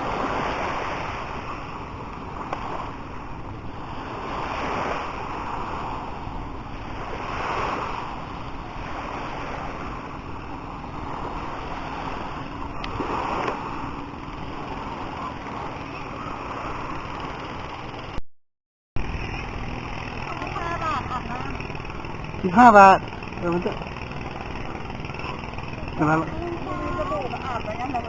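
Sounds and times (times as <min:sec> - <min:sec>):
sea waves washing on beach: 0:00.0 - 0:18.2
wind on microphone: 0:00.0 - 0:18.2.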